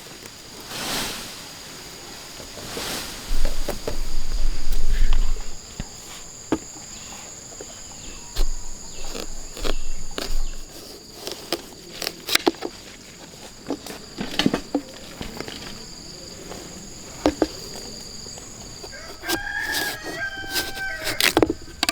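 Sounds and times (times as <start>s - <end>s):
insects calling: 0.0s - 21.9s
sharp clicks and knocks: 20.5s - 21.9s.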